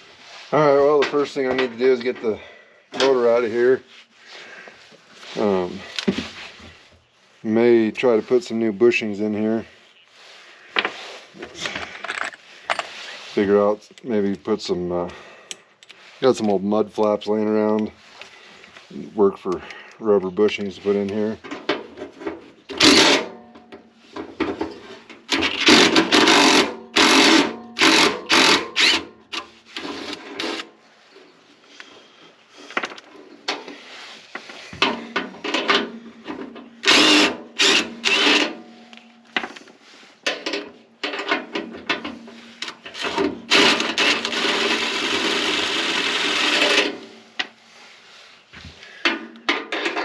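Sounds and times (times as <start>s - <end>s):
hand tool scraping metal parts: 24.2s - 30.7s, 40.2s - 47.1s, 49.0s - 50.0s.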